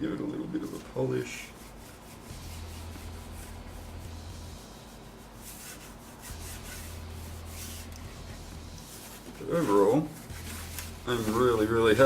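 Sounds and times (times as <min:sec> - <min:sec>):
cloth rubbing on case: 0:00.6 - 0:12.0
low hum: 0:02.2 - 0:05.3, 0:06.2 - 0:09.0.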